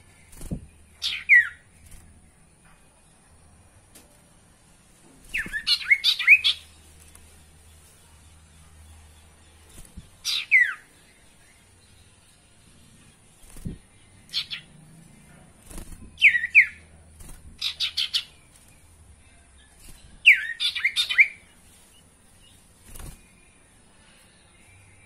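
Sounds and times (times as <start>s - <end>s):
bird whistling falling notes: 5.3s - 6.5s.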